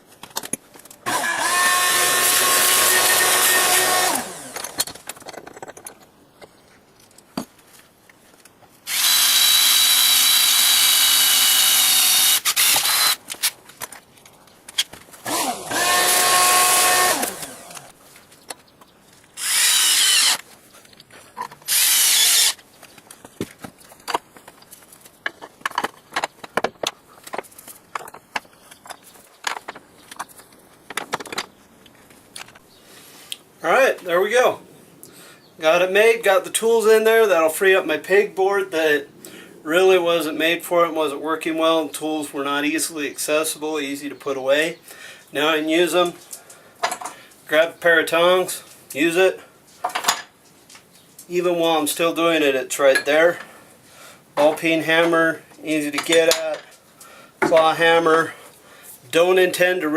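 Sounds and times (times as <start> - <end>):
electric drill whining: 1.1 - 4.8, 8.9 - 13.2, 15.2 - 17.9, 19.4 - 20.4, 21.7 - 22.6
tools and parts clicking: 4.4 - 7.3, 46.3 - 47.2, 49.8 - 51.3.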